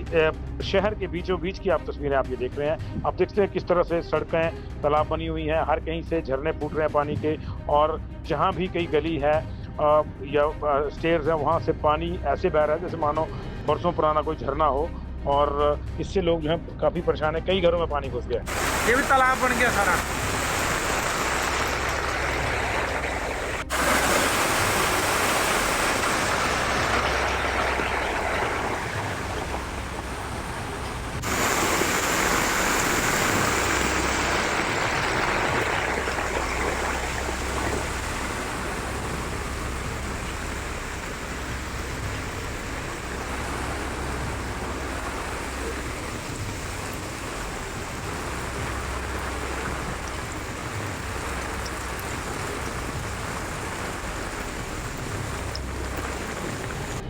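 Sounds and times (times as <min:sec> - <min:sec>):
rushing floodwater: 0:18.5 - 0:57.0.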